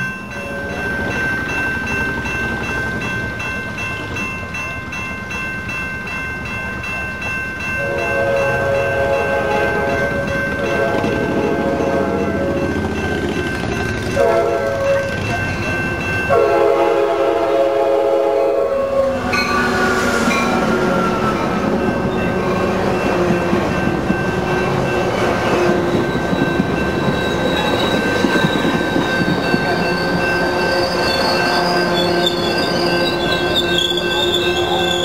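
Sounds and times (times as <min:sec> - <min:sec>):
crossing bell ringing: 0:00.0 - 0:35.0
train rumbling over rails: 0:00.0 - 0:35.0
train horn blasts: 0:00.3 - 0:01.0, 0:07.8 - 0:12.7, 0:14.2 - 0:15.2, 0:16.3 - 0:22.4
high wheel squeal: 0:19.0 - 0:22.7, 0:25.5 - 0:35.0.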